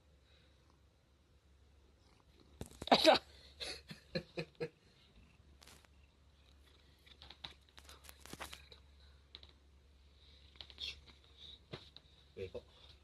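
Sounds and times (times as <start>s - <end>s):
faint clicks and rustles: 1.9s - 3.1s, 4.9s - 13.0s.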